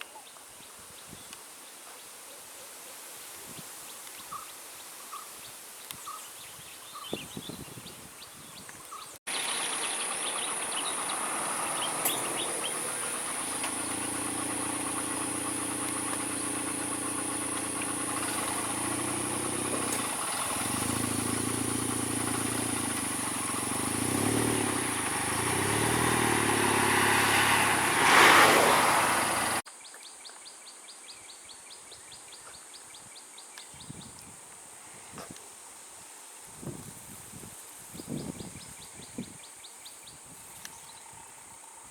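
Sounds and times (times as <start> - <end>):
vehicle engine running: 9.3 - 29.6.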